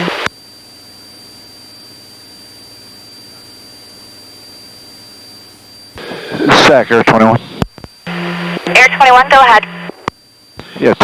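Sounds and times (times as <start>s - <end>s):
radio static hiss: 0.0s - 0.4s, 5.7s - 11.0s
faint low hum: 0.0s - 11.0s.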